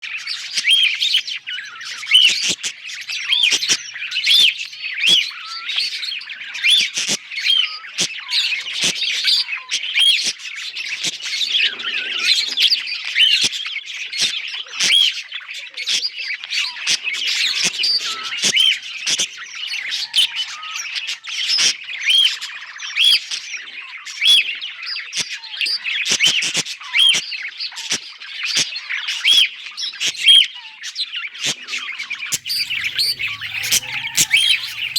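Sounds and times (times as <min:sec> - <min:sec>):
budgerigars chirping and squawking: 0:32.3 - 0:34.9.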